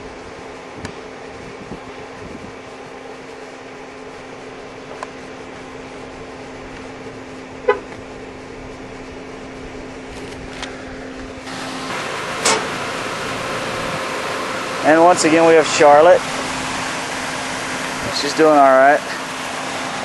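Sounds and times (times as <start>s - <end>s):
air conditioning fan whirring: 0.0s - 20.0s.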